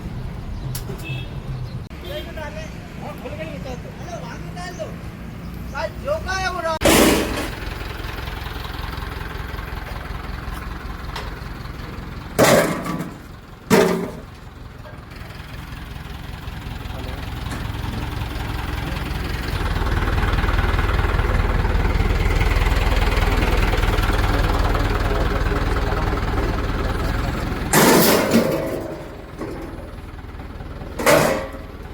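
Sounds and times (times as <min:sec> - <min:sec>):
loud sudden bangs: 0:06.8 - 0:07.7, 0:27.6 - 0:30.0
heavy diesel engine running: 0:06.8 - 0:31.9.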